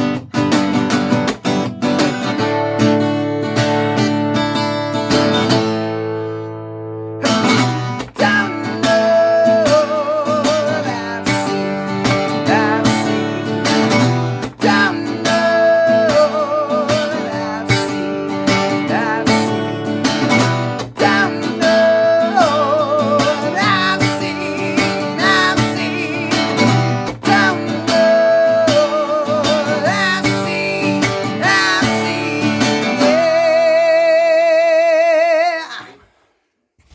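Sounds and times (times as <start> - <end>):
acoustic guitar strumming: 0.0 - 36.0.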